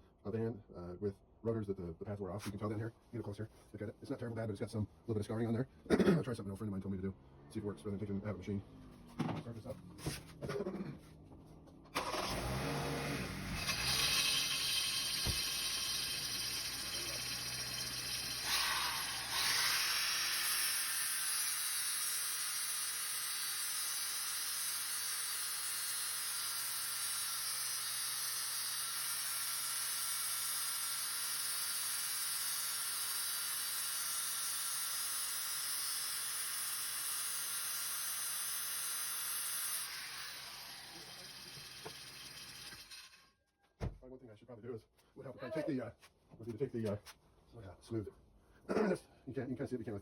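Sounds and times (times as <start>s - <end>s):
angle grinder grinding rotor: 12.1s - 43.3s.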